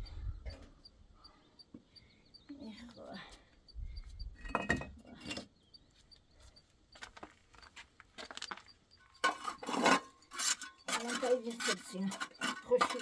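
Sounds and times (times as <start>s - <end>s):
knocks and clinks of objects handled: 4.4s - 5.5s.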